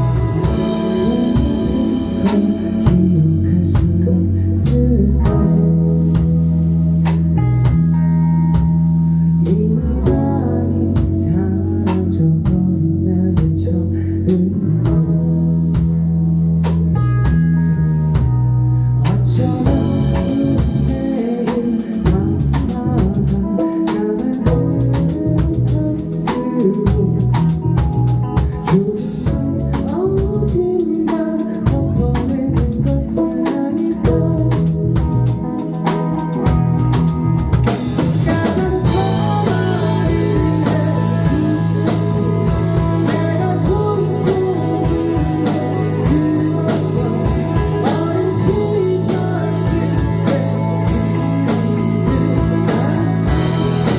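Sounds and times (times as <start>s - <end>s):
rapid drum hits: 0.0s - 4.0s, 19.1s - 23.4s, 34.7s - 53.9s
held bass notes: 0.0s - 53.9s
live rock band playing: 0.0s - 53.9s.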